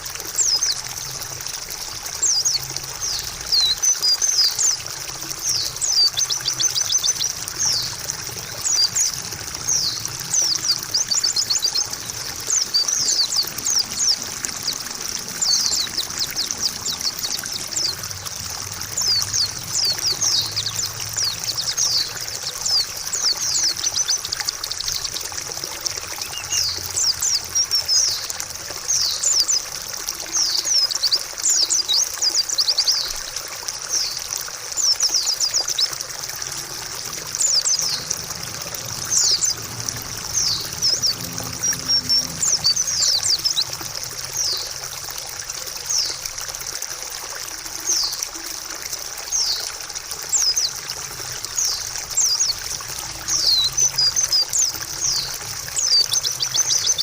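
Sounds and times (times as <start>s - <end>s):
trickling water: 0.0s - 57.0s
bird twittering song: 0.3s - 0.9s, 2.1s - 44.8s, 45.8s - 46.3s, 47.8s - 48.4s, 49.3s - 57.0s.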